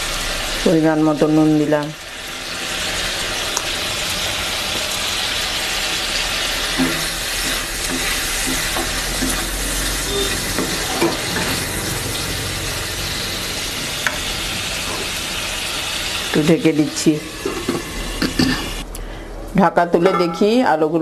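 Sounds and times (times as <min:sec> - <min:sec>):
potatoes sizzling in metal pan: 0:00.0 - 0:18.8
spatula scraping and knocking pan: 0:06.6 - 0:11.8.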